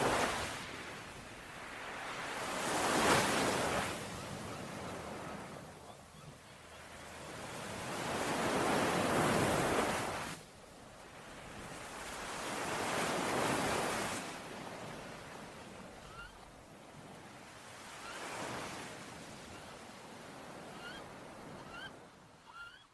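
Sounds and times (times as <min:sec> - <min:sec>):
sea waves washing onto shore: 0:00.0 - 0:05.6
faint bird chirp: 0:04.1 - 0:07.2, 0:16.0 - 0:16.6, 0:20.6 - 0:22.9.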